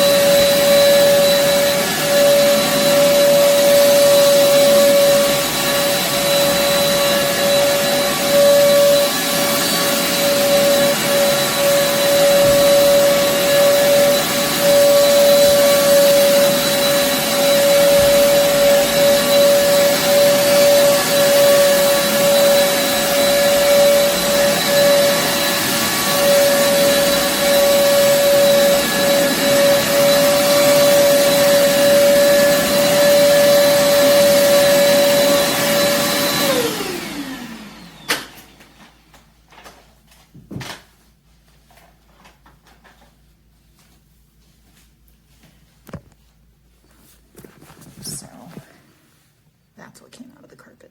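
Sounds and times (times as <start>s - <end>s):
vacuum cleaner on carpet: 0.0s - 39.2s.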